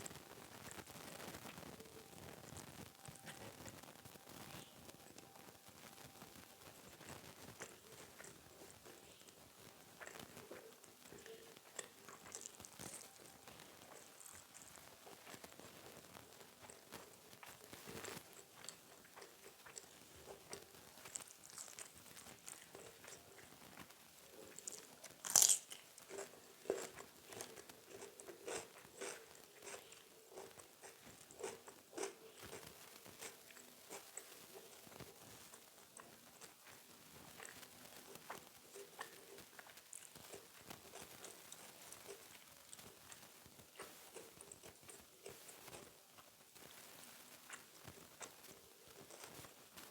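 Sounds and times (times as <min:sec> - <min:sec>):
wet chewing: 0:00.0 - 0:49.9
crunchy bite and chewing: 0:06.9 - 0:09.4, 0:10.0 - 0:15.8, 0:16.4 - 0:46.0, 0:47.5 - 0:49.5.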